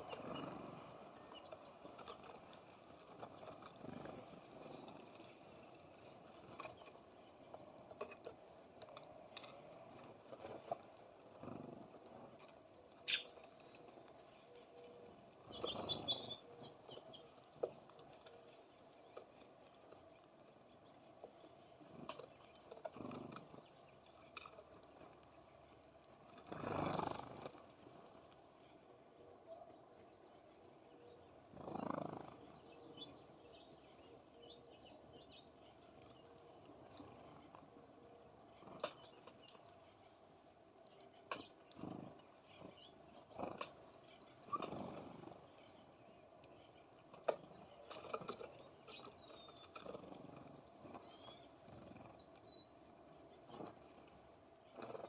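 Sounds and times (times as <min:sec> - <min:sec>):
birds clicking and tapping at feeder: 0:00.1 - 0:28.7, 0:31.5 - 0:55.0.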